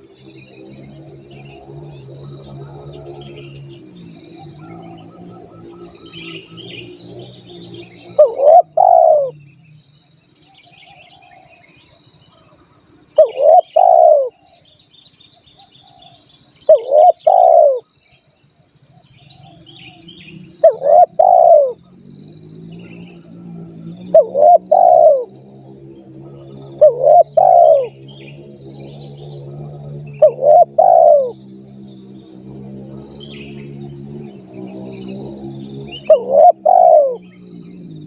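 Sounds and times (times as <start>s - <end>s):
insects trilling: 0.0s - 38.0s
dove cooing: 7.9s - 9.4s, 13.2s - 14.6s, 15.8s - 17.9s, 19.3s - 21.9s, 22.8s - 25.4s, 26.1s - 31.4s, 34.6s - 38.0s.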